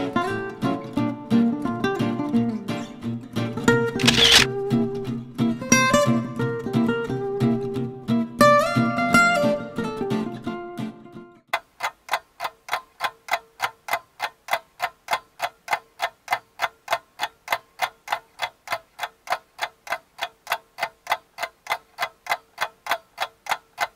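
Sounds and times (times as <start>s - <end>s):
rapid mechanical ticking: 4.0s - 4.5s.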